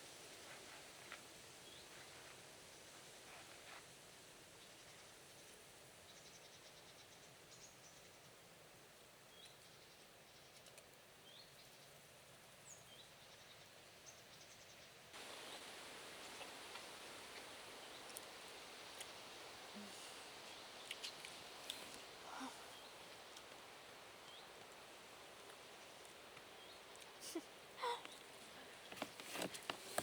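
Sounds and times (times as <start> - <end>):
background hiss: 0.0 - 30.0.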